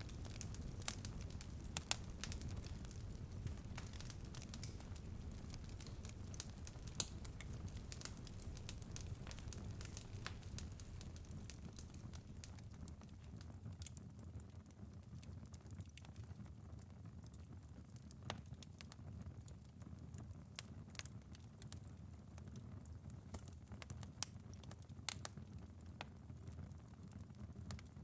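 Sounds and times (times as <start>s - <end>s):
wood fire crackling and popping: 0.0s - 28.0s.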